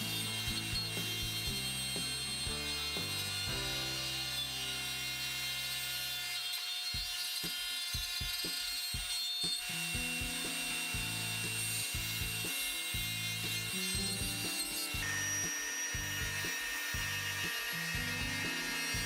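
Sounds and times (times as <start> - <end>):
steady drum beat: 8.0 - 9.1, 10.0 - 11.2.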